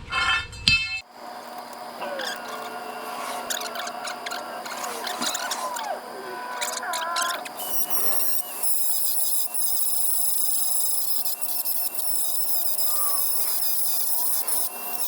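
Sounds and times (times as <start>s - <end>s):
grinder cutting steel: 1.4s - 15.0s.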